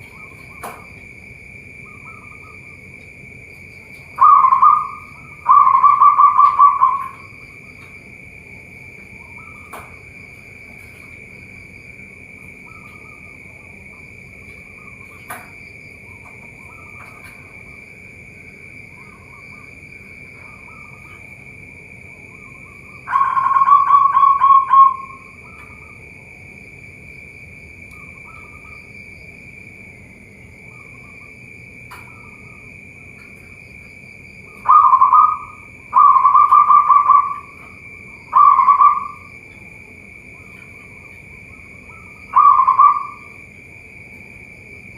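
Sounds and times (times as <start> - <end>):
doves cooing with trilled notes: 0.0 - 26.3, 27.7 - 29.0, 30.6 - 44.9
high insect drone: 0.0 - 44.9
faint dove calls: 4.1 - 7.4, 22.4 - 26.0, 34.5 - 37.7, 38.3 - 39.3, 41.5 - 43.4.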